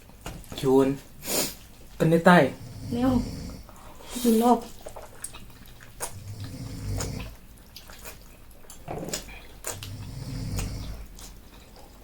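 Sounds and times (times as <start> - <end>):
chewing and slurping noodles: 4.6 - 12.0
wet mouth clicks and smacks: 4.8 - 11.4.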